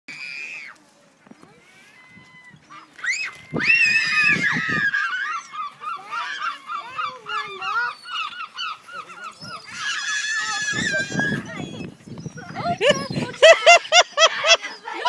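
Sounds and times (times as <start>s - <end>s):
gulls calling: 1.7s - 15.0s.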